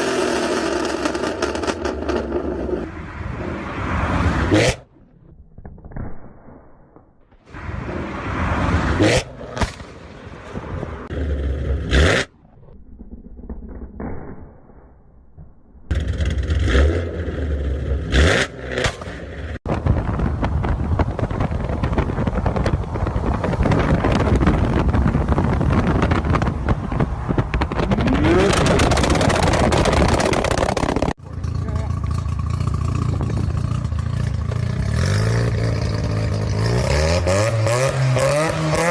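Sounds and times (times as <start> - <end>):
exhaust pops and bangs: 18.8 - 31.2.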